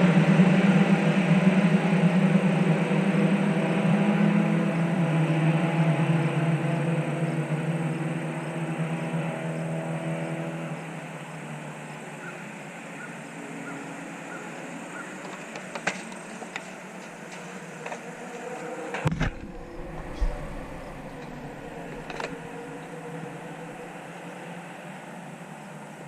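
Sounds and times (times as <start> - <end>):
distant race cars: 0.0 - 26.0
race car engine: 0.0 - 26.0
low thump: 19.0 - 22.4.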